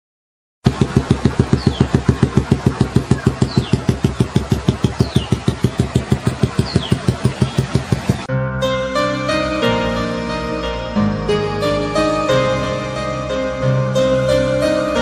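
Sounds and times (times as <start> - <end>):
motorcycle engine idling: 0.6 - 8.3
music: 8.2 - 15.0.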